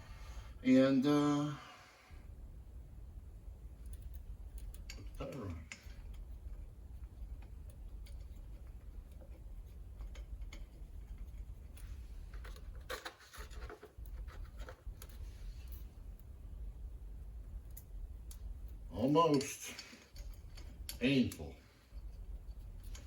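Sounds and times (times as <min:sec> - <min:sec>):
steady low rumble: 0:02.2 - 0:12.3, 0:14.8 - 0:19.0
hand tools clicking and tapping: 0:19.1 - 0:21.0.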